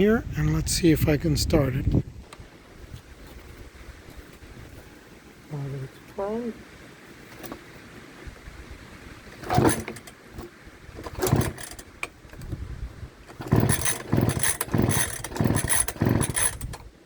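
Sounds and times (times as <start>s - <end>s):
starter cord being pulled: 7.4s - 7.6s, 9.3s - 12.6s, 13.3s - 16.9s
engine turning over: 9.3s - 12.6s, 13.2s - 16.9s.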